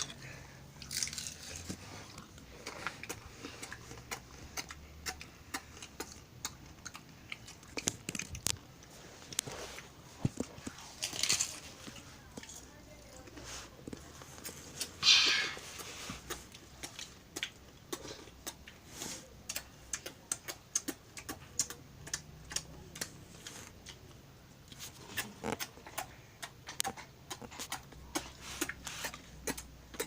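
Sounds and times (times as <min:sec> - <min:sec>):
chewing crunches: 0:00.0 - 0:12.6, 0:15.6 - 0:18.8.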